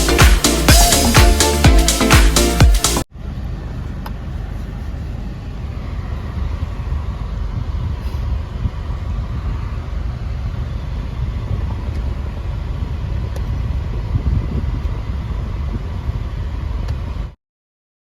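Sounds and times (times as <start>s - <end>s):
car road and engine rumble: 3.1s - 17.3s.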